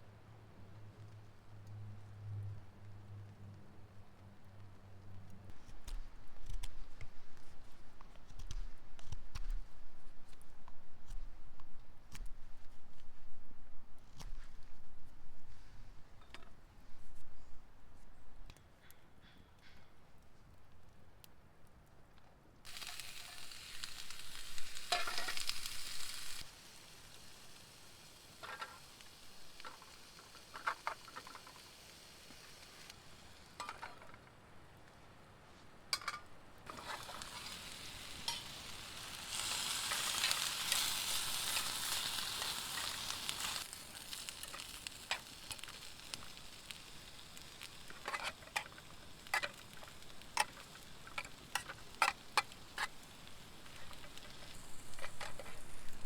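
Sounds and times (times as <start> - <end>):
food sizzling in a pan: 22.7 - 34.2, 35.9 - 56.0.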